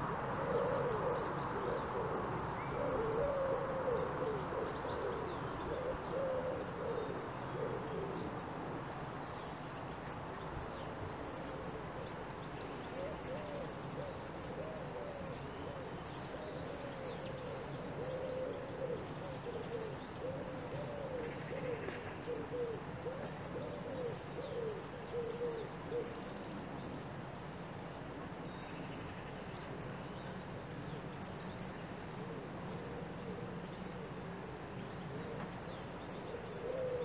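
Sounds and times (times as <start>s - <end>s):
low background noise: 0.0s - 37.0s
bird hooting: 0.4s - 8.2s, 36.3s - 37.0s.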